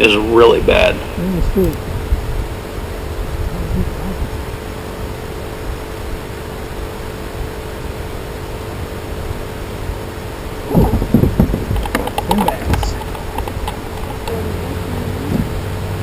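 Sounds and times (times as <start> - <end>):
microphone hiss: 0.0 - 16.0.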